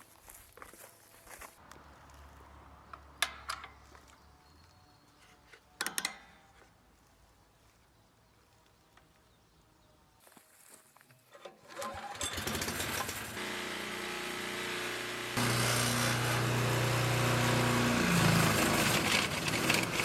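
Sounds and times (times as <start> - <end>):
sharp clicks and knocks: 2.9 - 4.1, 5.8 - 6.7.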